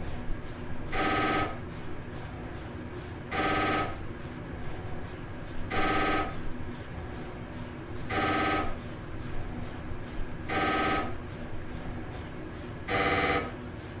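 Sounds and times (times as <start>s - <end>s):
warbling electronic phone ring: 1.0s - 1.6s, 3.4s - 4.0s, 5.7s - 6.4s, 8.1s - 8.8s, 10.5s - 11.2s, 12.9s - 13.6s.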